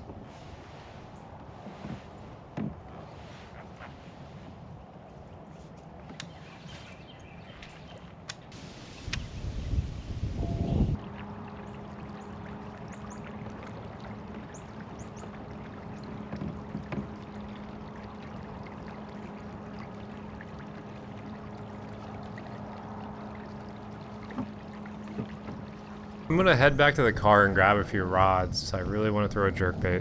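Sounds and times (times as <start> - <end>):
water: 0.0 - 30.0
wind rumble on microphone: 8.9 - 11.4, 26.3 - 30.0.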